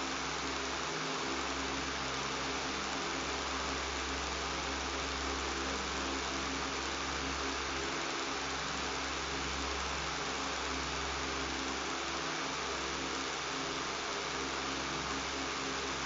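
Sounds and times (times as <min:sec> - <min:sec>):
electric fan running: 0:00.0 - 0:16.0.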